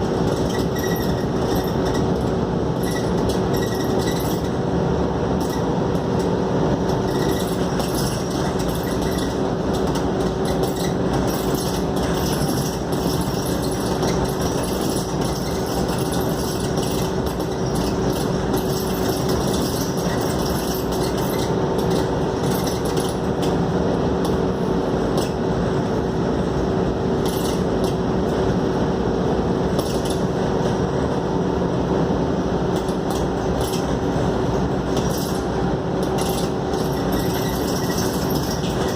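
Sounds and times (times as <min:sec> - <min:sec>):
bodywork rattles and clinks: 0:00.0 - 0:04.6, 0:05.4 - 0:23.6, 0:32.8 - 0:38.9
bus engine drone: 0:00.0 - 0:38.9
road noise: 0:00.0 - 0:38.9.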